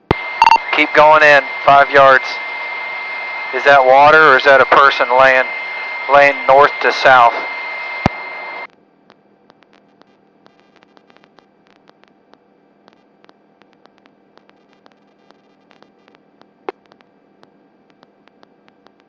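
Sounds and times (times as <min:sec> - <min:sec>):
static clicks: 0:07.4 - 0:19.0.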